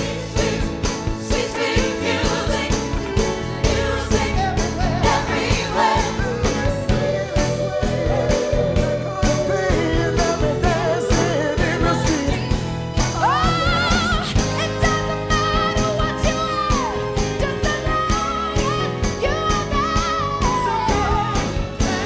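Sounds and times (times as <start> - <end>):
live band playing soul music: 0.0 - 22.0
voices singing together: 0.0 - 22.0.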